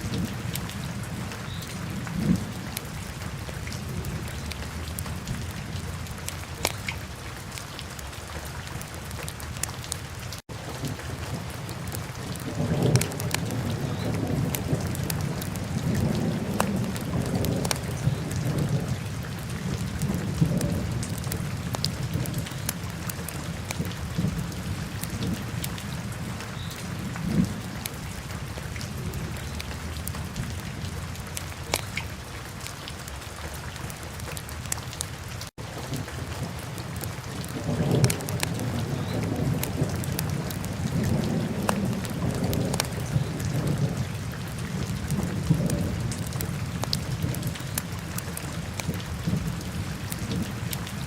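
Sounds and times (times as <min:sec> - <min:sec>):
fire crackling and popping: 0:06.6 - 0:06.9, 0:37.0 - 0:42.9.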